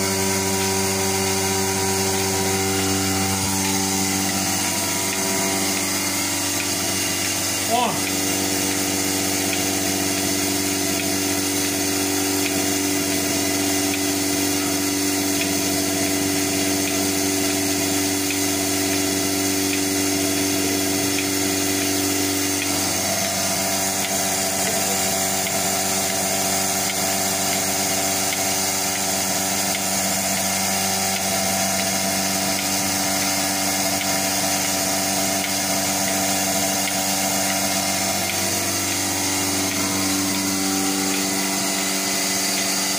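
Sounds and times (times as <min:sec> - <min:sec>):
noisy background: 0:00.0 - 0:11.1
machine hum with held tones: 0:00.0 - 0:42.9.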